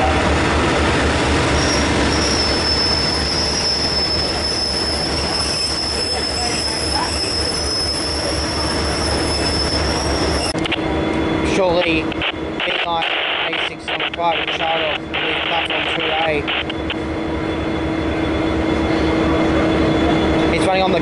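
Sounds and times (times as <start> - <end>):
train wheels squealing: 1.4 - 10.6, 17.4 - 21.0.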